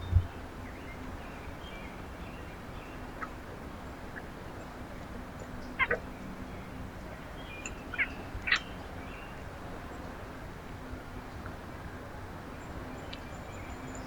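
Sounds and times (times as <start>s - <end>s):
low background hum: 0.0s - 10.4s.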